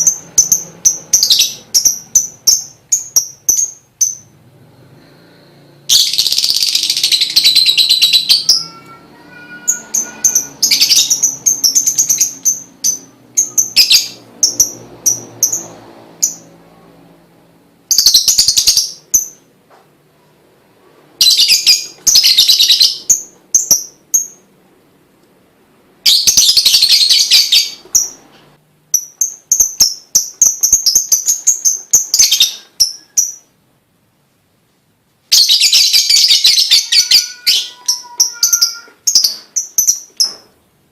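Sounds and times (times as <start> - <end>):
lovebird chattering trills: 5.9 - 16.5.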